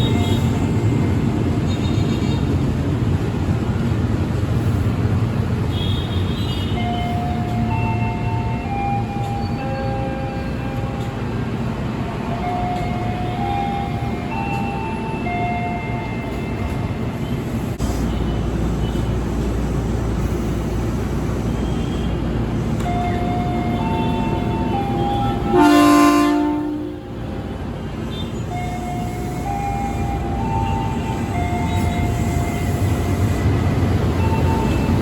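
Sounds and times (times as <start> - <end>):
train rumbling: 0.0 - 35.0
train horn blast: 23.8 - 27.2.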